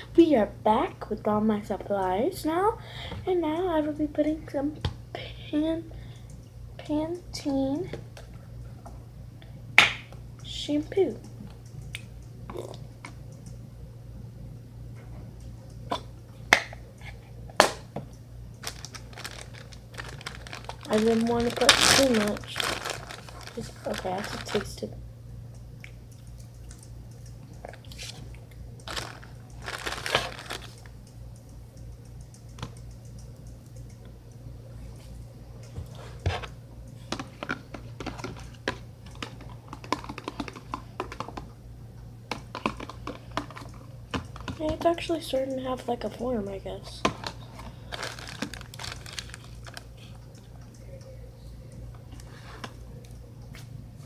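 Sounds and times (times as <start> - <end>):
low hum: 4.0 - 54.0
slime being stirred: 18.6 - 24.8, 37.1 - 41.5.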